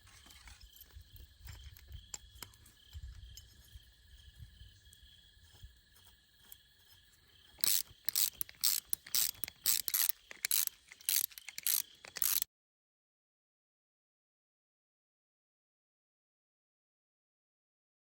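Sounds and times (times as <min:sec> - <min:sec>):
ratchet wrench clicking: 0:07.6 - 0:12.5.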